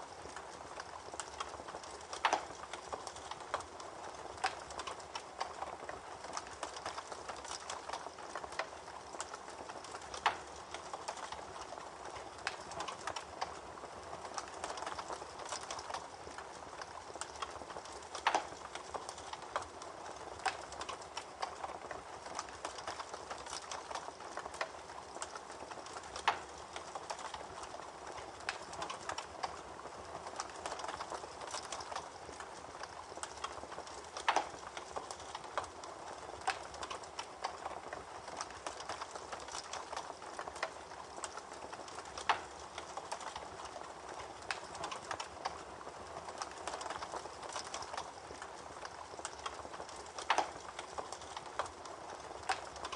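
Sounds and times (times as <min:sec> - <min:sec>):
campfire crackling: 0:00.0 - 0:52.9
loud fire pops: 0:14.3 - 0:29.6.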